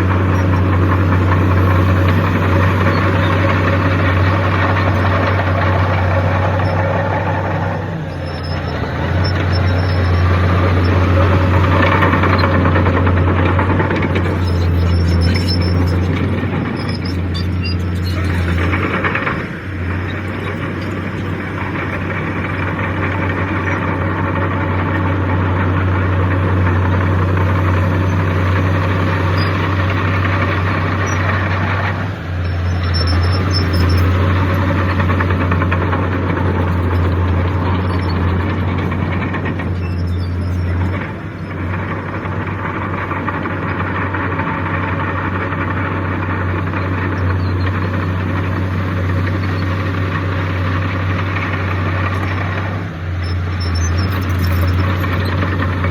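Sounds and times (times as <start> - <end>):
heavy diesel engine droning: 0.0 - 55.9.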